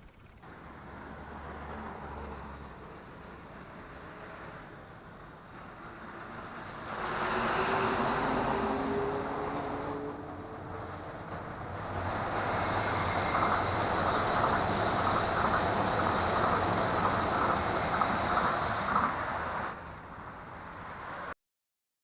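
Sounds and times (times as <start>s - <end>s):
large vehicle roaring past: 0.5s - 19.9s.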